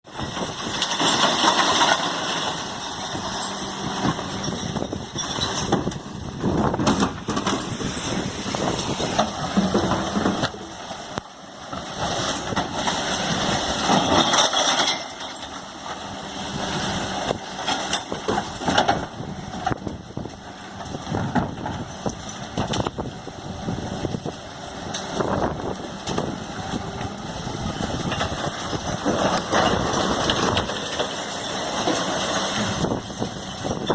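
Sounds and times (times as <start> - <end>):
bins knocking and clattering: 0.1 - 10.8, 11.7 - 20.0, 25.0 - 33.9.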